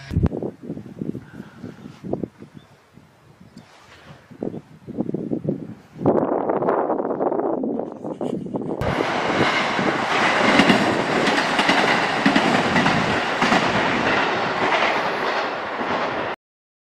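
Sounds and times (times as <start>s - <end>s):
train rumble: 6.1s - 16.4s
train wheels clacking: 8.8s - 16.3s.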